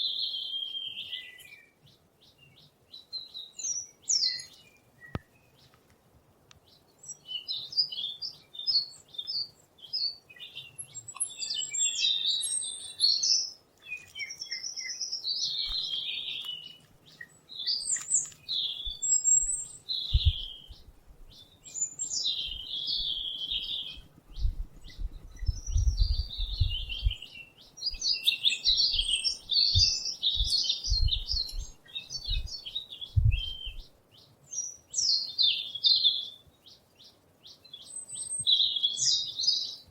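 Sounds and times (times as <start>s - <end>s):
songbirds chirping and singing: 0.0s - 5.9s, 6.5s - 39.9s
low thumps: 20.1s - 20.9s, 33.2s - 33.6s.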